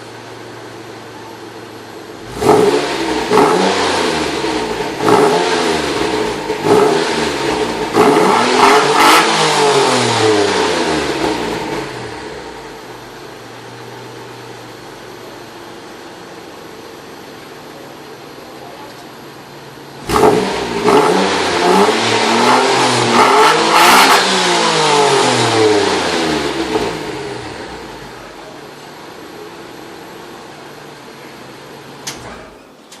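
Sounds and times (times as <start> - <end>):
car engine idling and revving: 0.0 - 32.3.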